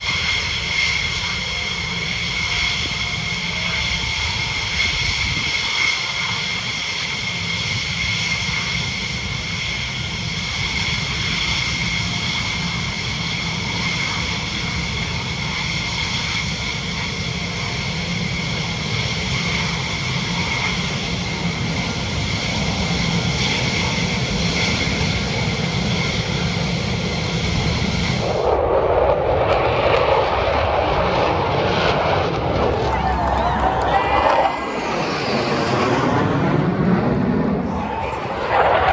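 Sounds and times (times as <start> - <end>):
jet engines whining: 0.0 - 38.9
rushing noise: 32.5 - 38.9.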